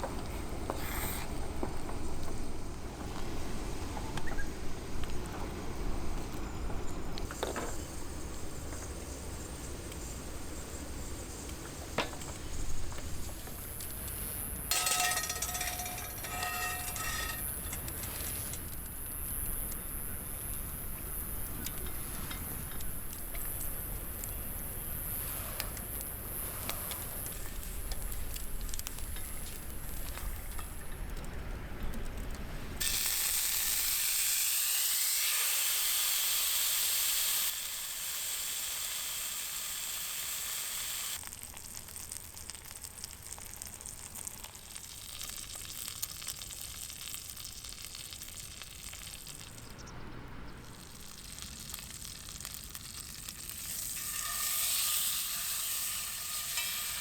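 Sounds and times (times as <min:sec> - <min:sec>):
steak sizzling over fire: 0:00.0 - 0:05.2, 0:06.2 - 0:49.9, 0:50.6 - 0:57.0.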